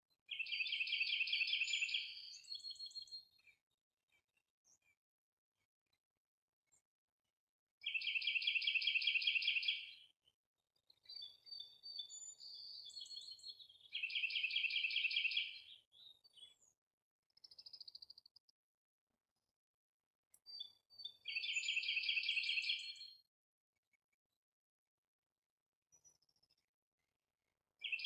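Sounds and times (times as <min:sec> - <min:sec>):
songbird trilling and chirping: 0:00.3 - 0:03.0, 0:07.8 - 0:10.0, 0:11.0 - 0:16.5, 0:20.4 - 0:23.1.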